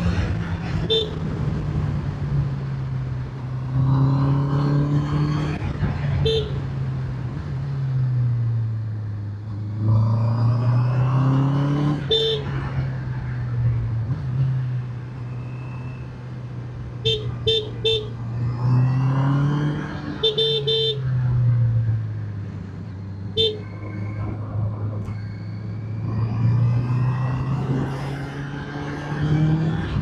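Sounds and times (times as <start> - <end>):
horn beeps: 0.8 - 1.2, 20.2 - 21.1, 23.3 - 24.3.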